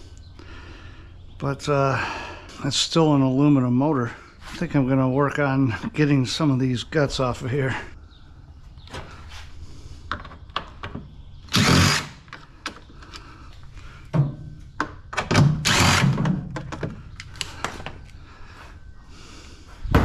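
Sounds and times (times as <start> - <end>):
power driver running: 11.4 - 13.3, 15.3 - 18.2.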